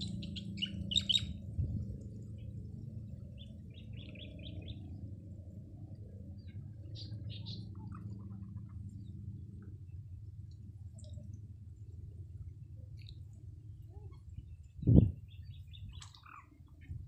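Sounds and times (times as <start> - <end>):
small birds chirping: 0.0 - 1.4, 3.3 - 4.9, 6.4 - 9.2, 13.9 - 17.0
low background rumble: 0.0 - 17.0.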